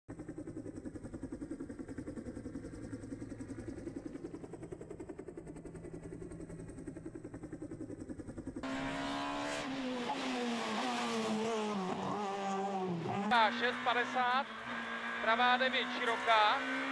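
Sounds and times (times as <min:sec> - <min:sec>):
rally car engine idling: 0:00.1 - 0:08.7
car engine under hard throttle: 0:00.1 - 0:16.9.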